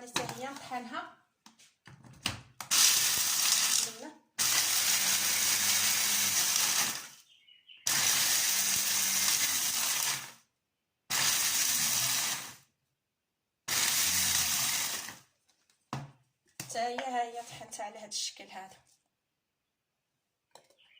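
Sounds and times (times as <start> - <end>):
electric grinder whirring: 2.7 - 7.1, 7.9 - 10.4, 11.1 - 12.6, 13.7 - 15.2.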